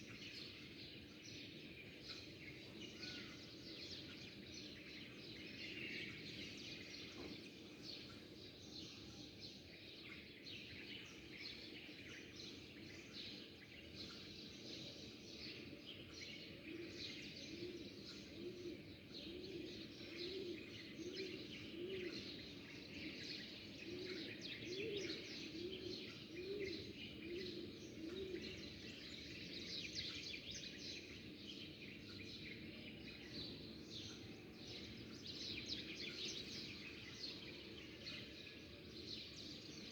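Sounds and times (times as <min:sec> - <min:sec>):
small birds chirping: 0:00.0 - 0:39.9
dove cooing: 0:23.9 - 0:28.5.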